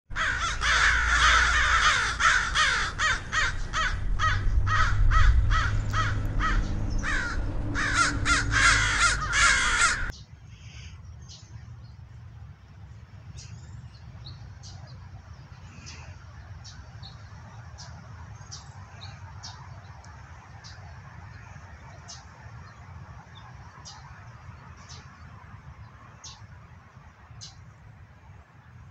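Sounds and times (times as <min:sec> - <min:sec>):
harsh bird cawing: 0:00.1 - 0:11.0
low rumble: 0:00.6 - 0:10.1.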